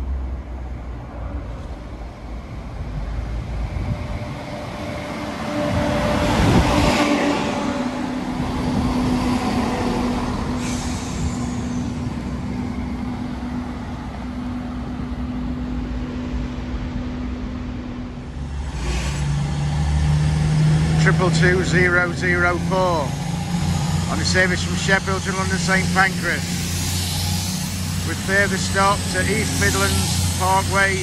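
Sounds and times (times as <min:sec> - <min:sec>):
diesel train engine drone: 0:00.0 - 0:31.0
wheels rumbling on rail: 0:00.0 - 0:31.0
high-pitched squeal: 0:04.0 - 0:13.1, 0:21.0 - 0:31.0.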